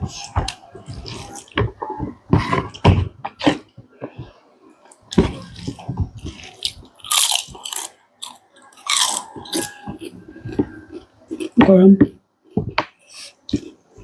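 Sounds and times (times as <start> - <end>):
person biting and chewing food: 0.0 - 1.8, 4.9 - 11.6, 12.8 - 14.0.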